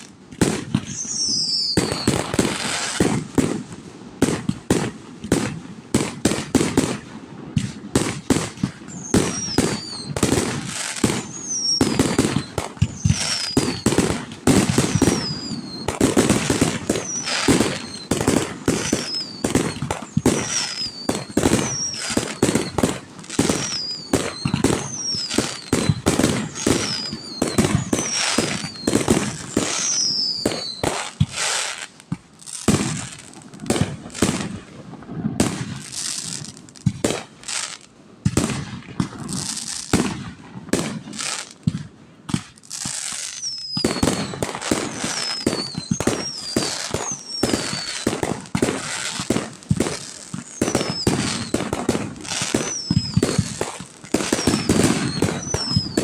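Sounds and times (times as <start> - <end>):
fireworks bangs and crackles: 0.0 - 56.0
firework whistle falling in pitch: 0.8 - 2.4, 8.9 - 10.4, 11.0 - 31.4, 43.1 - 49.3, 50.4 - 51.7, 52.3 - 56.0.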